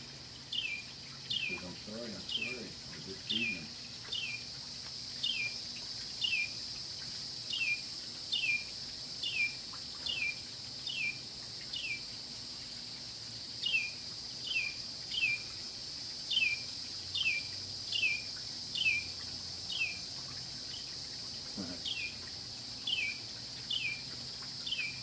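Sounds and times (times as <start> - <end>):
bird chirping: 0.5 - 4.5, 5.2 - 5.6, 6.2 - 6.6, 7.5 - 12.1, 13.6 - 15.5, 16.3 - 19.1, 19.7 - 20.0, 21.6 - 22.2, 22.8 - 24.0, 24.6 - 25.0
high-pitched insect drone: 0.7 - 22.3.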